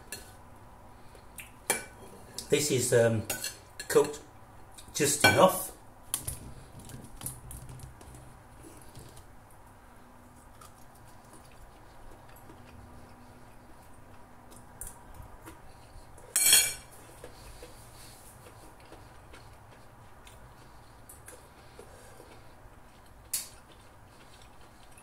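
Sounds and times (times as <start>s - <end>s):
person chewing: 10.3s - 16.3s, 16.9s - 25.0s.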